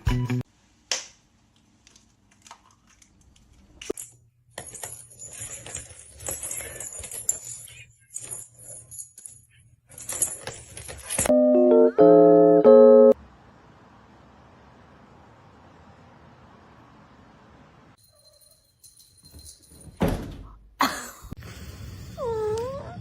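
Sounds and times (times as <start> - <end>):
jingling rattle: 4.0 - 11.3, 18.0 - 20.0
piano music: 11.3 - 13.2.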